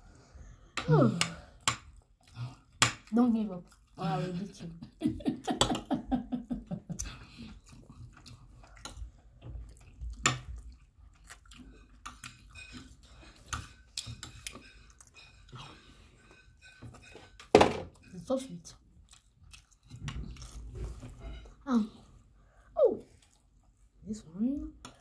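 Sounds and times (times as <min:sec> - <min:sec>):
people chewing and eating: 0:00.0 - 0:25.0
metal spoons clicking on plates: 0:12.0 - 0:15.6.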